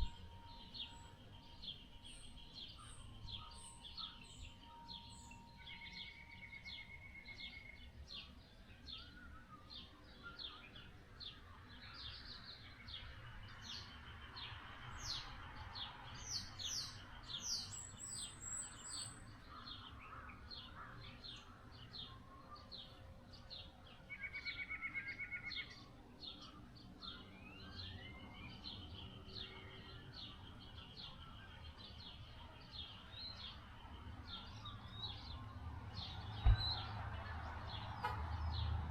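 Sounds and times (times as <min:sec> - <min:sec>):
bird trill: 0:00.0 - 0:10.9, 0:24.1 - 0:33.6
wild birds chirping: 0:00.0 - 0:38.9.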